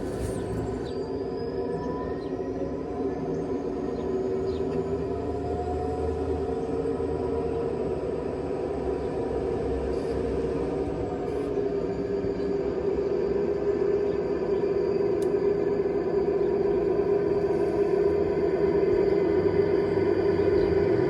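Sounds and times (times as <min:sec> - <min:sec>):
model train rumbling: 0:06.2 - 0:21.0.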